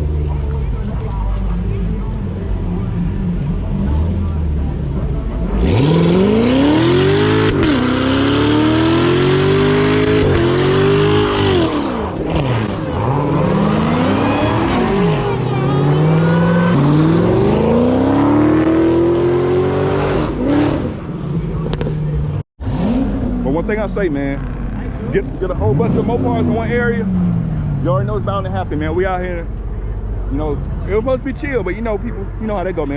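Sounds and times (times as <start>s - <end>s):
car engine revving: 0.0s - 32.9s.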